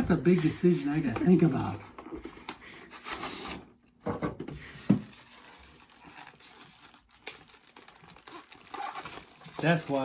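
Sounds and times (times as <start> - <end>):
packaging crinkling and rustling: 4.6 - 10.0.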